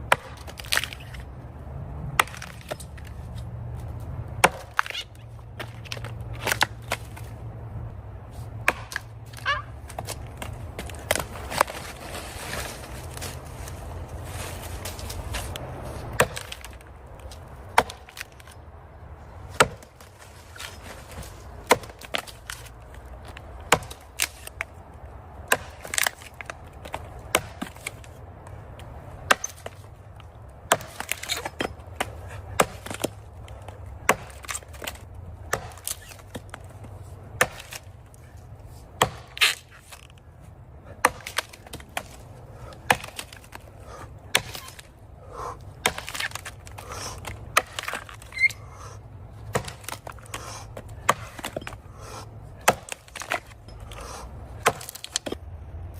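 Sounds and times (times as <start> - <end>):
axe chopping tree trunk: 0.0 - 1.3, 2.1 - 7.4, 8.4 - 18.6, 19.4 - 40.2, 40.8 - 55.5.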